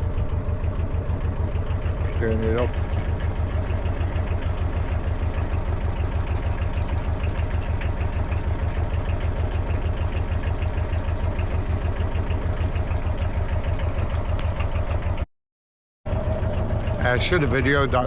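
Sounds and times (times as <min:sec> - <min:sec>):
diesel engine chugging: 0:00.0 - 0:15.3, 0:16.1 - 0:18.0.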